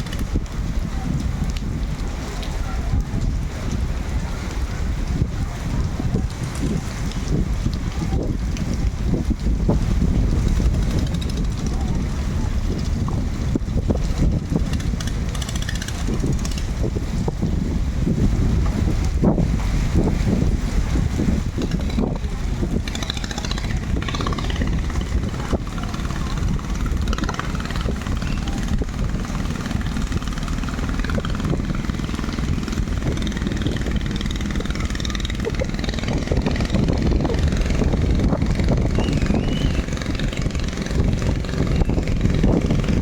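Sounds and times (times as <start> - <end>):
boat engine rumbling: 0.0 - 43.0.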